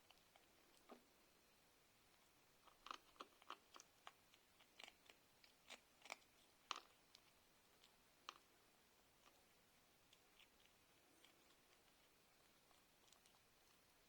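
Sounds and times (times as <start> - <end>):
cat chewing food: 0.0 - 14.0.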